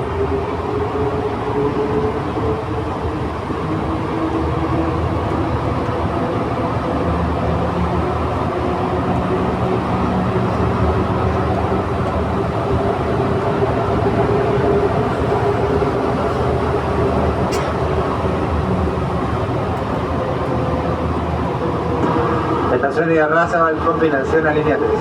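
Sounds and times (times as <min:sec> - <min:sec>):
train rumbling inside car: 0:00.0 - 0:25.0.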